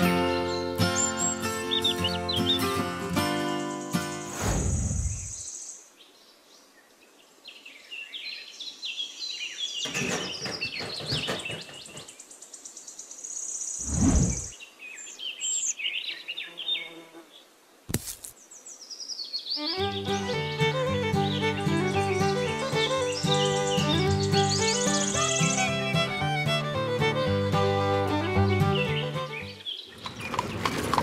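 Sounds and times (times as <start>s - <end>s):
music: 0.0s - 4.3s, 19.6s - 29.6s
birds chirping: 0.4s - 17.0s, 18.4s - 31.0s.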